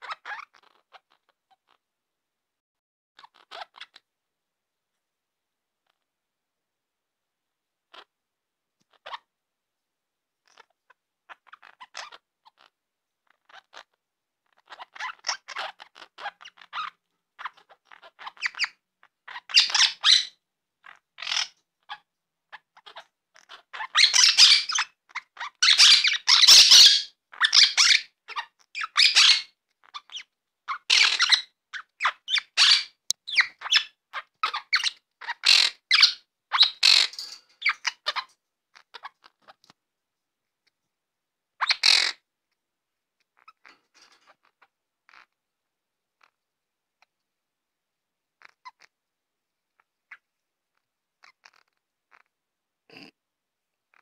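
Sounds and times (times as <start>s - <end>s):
budgerigar chattering and squawking: 11.3s - 12.7s, 13.3s - 22.0s, 22.6s - 39.6s, 41.6s - 42.2s, 51.2s - 52.3s, 52.9s - 53.1s.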